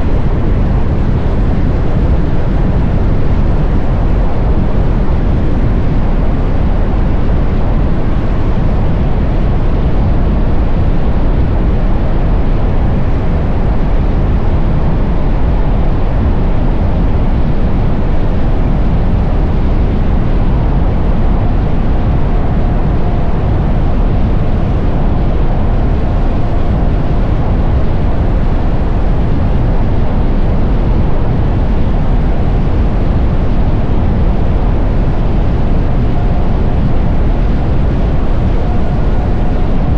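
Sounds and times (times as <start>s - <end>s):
faint steady whine: 0.0s - 39.9s
wind buffeting microphone: 0.0s - 39.9s.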